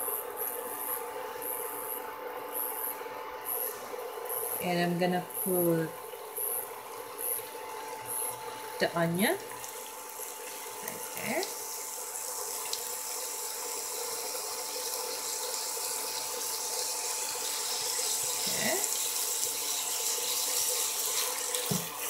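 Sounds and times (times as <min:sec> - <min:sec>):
onion and garlic sizzling in oil: 0:05.3 - 0:22.0.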